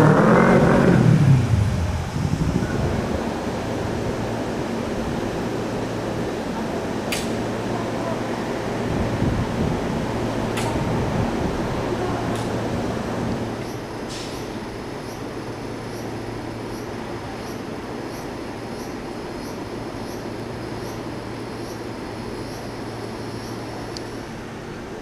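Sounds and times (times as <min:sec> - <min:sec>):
electric train rumbling: 0:00.0 - 0:25.0.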